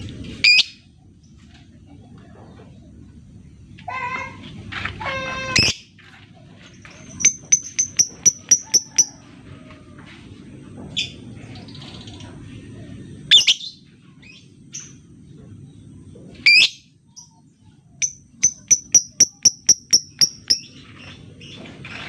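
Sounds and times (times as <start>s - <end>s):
lovebird calling: 7.2s - 9.1s, 18.0s - 20.8s.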